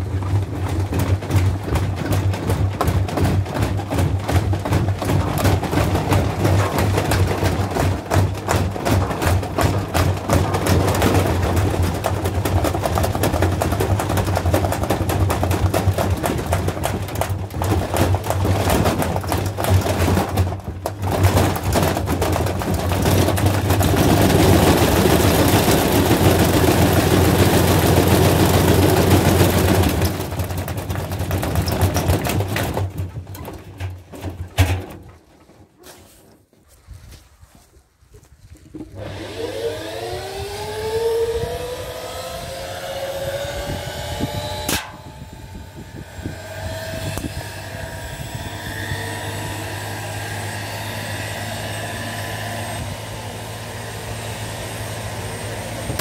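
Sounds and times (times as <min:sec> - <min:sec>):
washing machine drum banging: 0:00.0 - 0:35.1.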